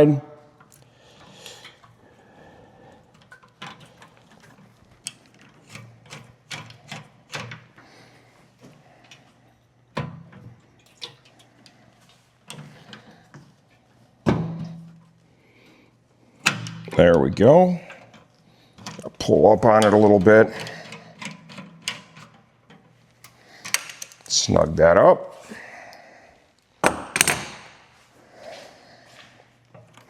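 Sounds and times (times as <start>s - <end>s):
clicks and taps of metal parts: 19.7s - 24.3s.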